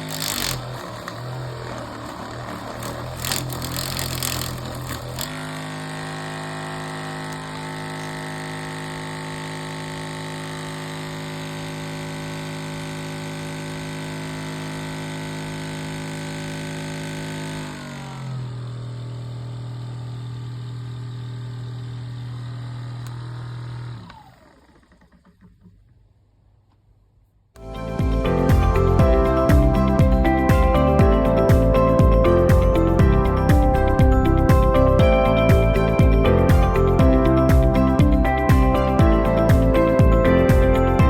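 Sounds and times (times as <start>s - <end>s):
massage gun motor buzzing: 0.0s - 11.9s.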